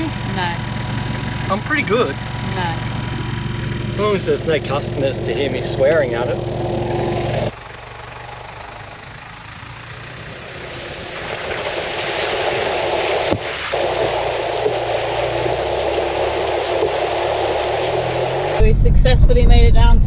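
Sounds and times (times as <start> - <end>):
road and wind noise: 0.0 - 20.0.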